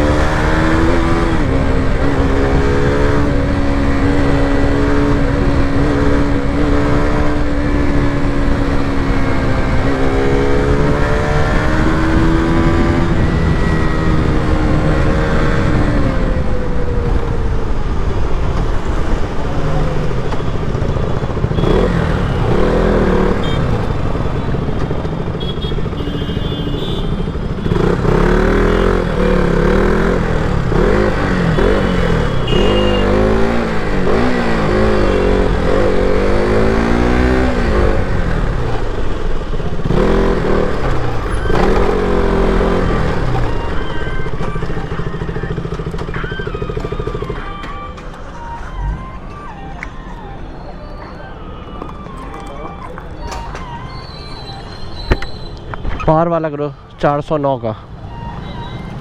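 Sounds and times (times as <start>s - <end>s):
motorcycle engine revving: 0.0s - 48.8s.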